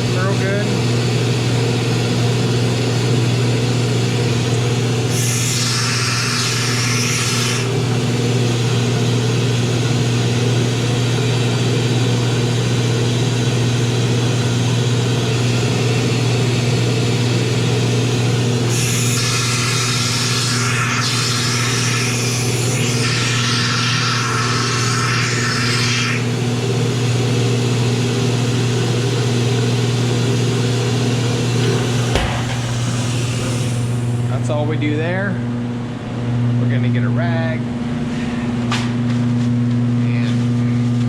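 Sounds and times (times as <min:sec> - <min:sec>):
spray gun washer humming: 0:02.6 - 0:34.4.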